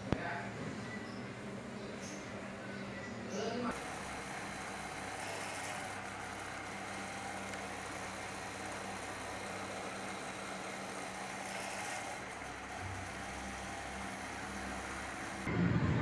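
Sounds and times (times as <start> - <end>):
machine hum with hiss: 3.7 - 16.0.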